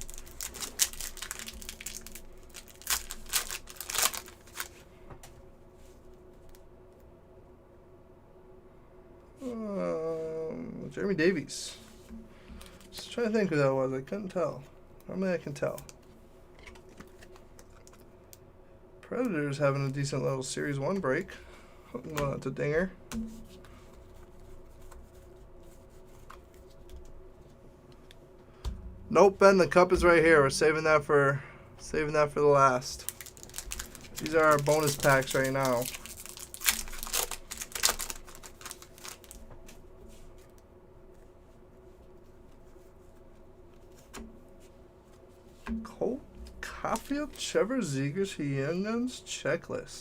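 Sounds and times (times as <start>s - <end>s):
wrapper crinkling: 0.0s - 4.8s, 32.9s - 39.5s
cards being handled: 0.0s - 5.4s, 16.6s - 18.1s, 33.0s - 40.5s
steady low hum: 0.0s - 50.0s.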